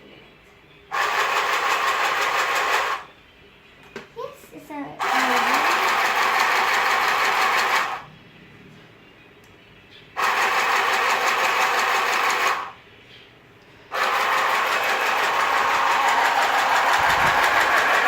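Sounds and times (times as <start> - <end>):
electric sewing machine stitching: 0.9 - 3.1, 5.0 - 8.1, 10.2 - 12.8, 13.9 - 18.0.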